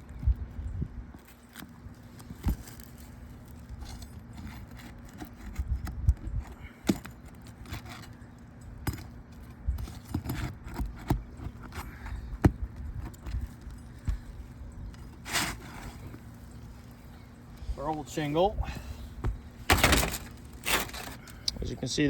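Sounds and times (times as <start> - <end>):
roof shingle being pulled loose: 19.3 - 21.4.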